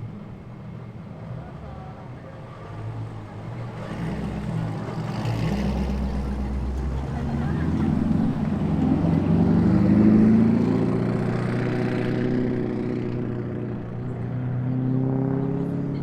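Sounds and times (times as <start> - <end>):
car engine accelerating: 1.4 - 16.0.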